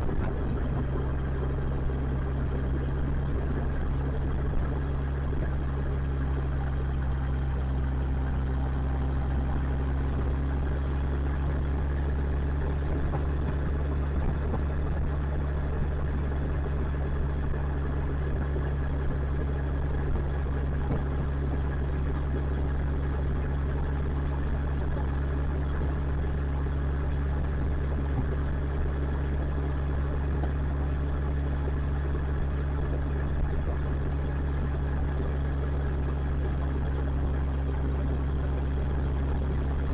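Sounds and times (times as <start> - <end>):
road and wind noise: 0.0 - 21.5
motorcycle engine running: 0.0 - 39.9.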